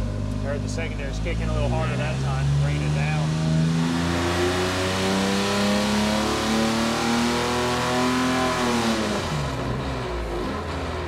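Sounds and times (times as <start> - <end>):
engine revving at full throttle: 0.4 - 11.0.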